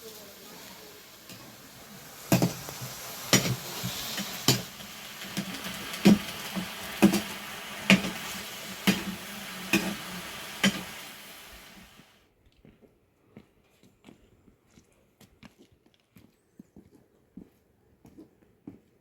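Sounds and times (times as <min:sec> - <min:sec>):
food sizzling in a pan: 0:00.0 - 0:12.2.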